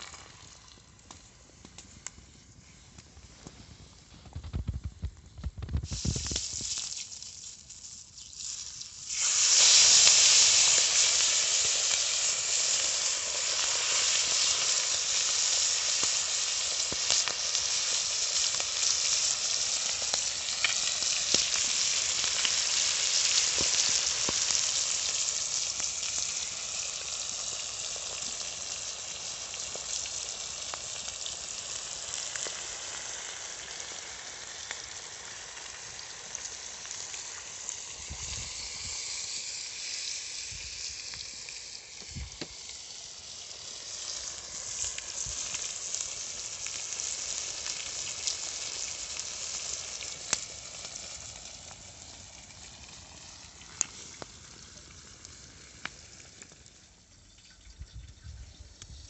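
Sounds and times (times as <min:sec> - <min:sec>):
food sizzling in a pan: 0:00.0 - 0:01.4, 0:05.4 - 0:59.0.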